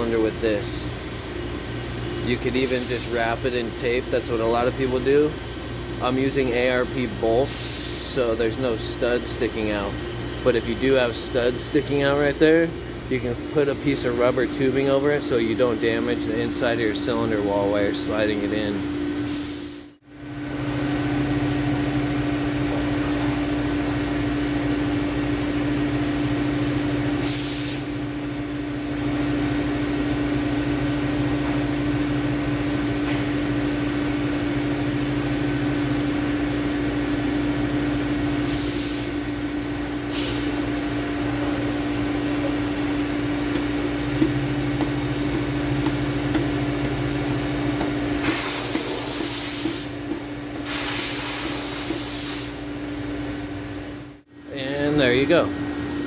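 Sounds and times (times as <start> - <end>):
machine hum: 0.0 - 27.2, 39.1 - 56.0.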